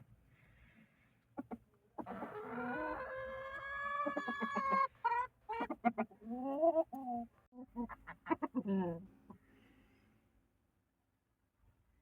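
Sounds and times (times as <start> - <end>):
rooster clucking: 1.4 - 9.0.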